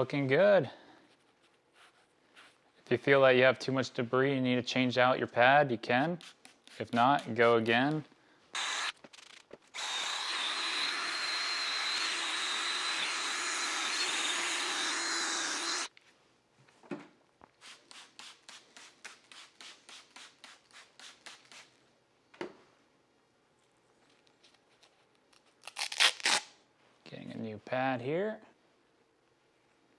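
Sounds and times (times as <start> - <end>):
drill sanding with motor whine: 8.6 - 8.9, 9.8 - 15.9.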